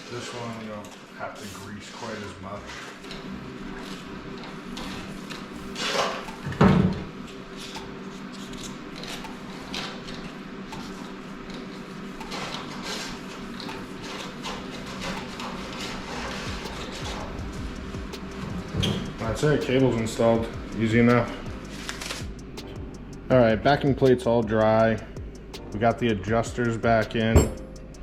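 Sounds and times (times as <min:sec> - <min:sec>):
steady low hum: 0:03.2 - 0:28.0.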